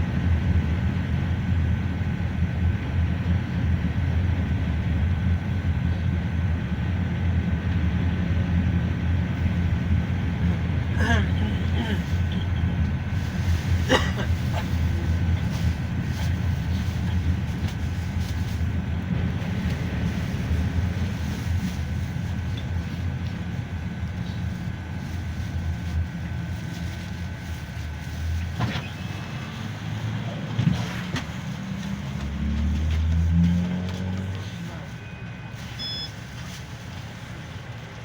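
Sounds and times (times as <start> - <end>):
minibus engine and road rumble: 0.0 - 38.0.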